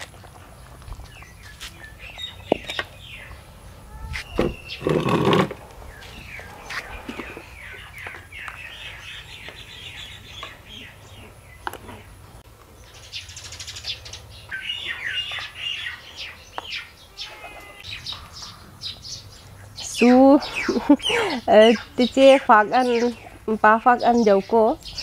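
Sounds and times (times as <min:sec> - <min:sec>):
small birds chirping: 0:00.0 - 0:25.0
bird trill: 0:12.9 - 0:25.0.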